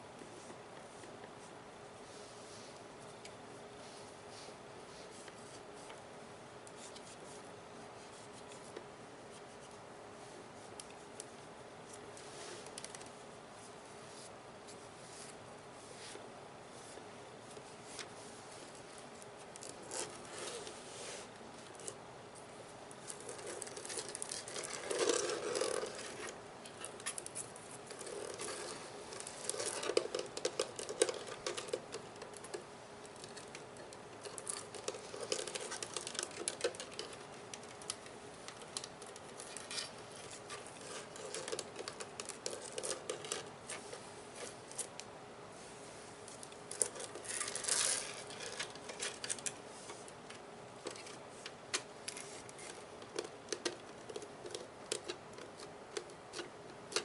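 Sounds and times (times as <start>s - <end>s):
scratchy rubs on plastic: 13.6s - 21.9s, 23.0s - 32.0s.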